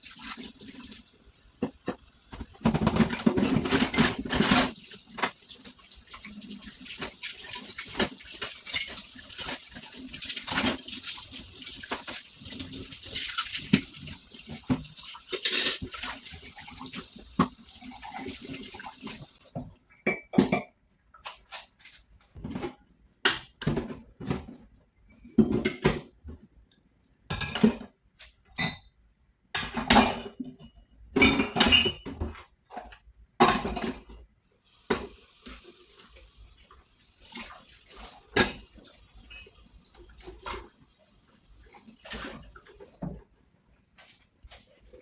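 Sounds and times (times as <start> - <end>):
tap water running: 0.0 - 19.7, 34.6 - 43.2
dishes and cutlery clinking: 15.1 - 16.1.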